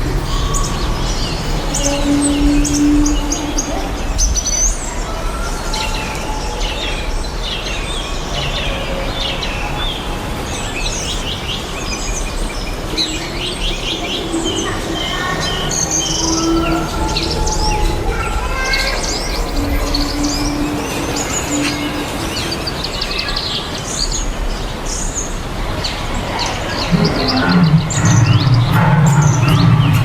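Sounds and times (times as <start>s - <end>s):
small birds chirping and trilling: 0.0s - 30.0s
low rumble: 26.3s - 30.0s.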